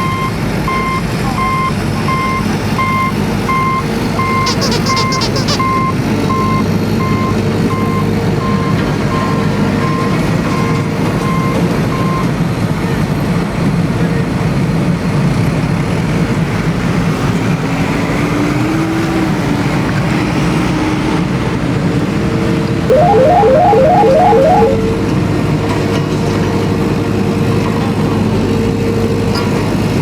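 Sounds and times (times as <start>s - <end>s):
reversing alarm beeping: 22.9s - 25.0s.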